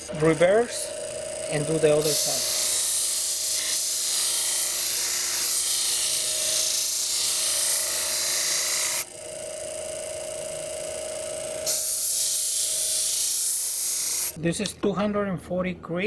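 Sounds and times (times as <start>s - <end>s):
knife grinding on abrasive disc: 0.0s - 9.1s, 10.8s - 14.4s
sharpener motor whine: 0.0s - 14.4s.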